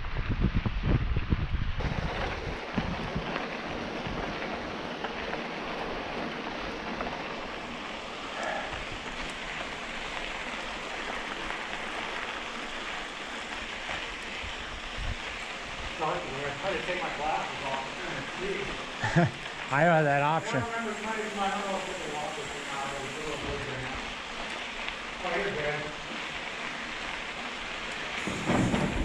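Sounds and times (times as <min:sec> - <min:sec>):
wind buffeting on microphone: 0:00.0 - 0:05.8, 0:13.6 - 0:16.0
bicycle tyres rolling on trail: 0:00.0 - 0:29.0
wind hiss: 0:00.0 - 0:29.0.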